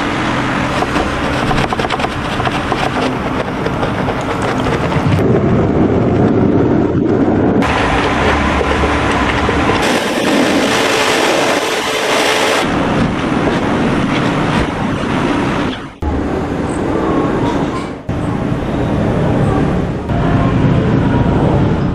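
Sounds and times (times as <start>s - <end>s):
pressure washer spray hissing: 9.8s - 12.6s.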